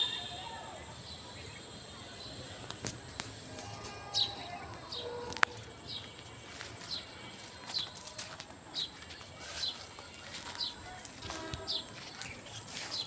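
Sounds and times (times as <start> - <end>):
bird calling: 0.0 - 1.7.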